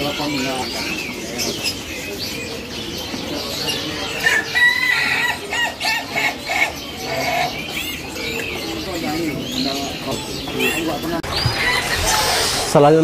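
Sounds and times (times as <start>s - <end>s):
caged birds chirping: 0.0s - 13.0s.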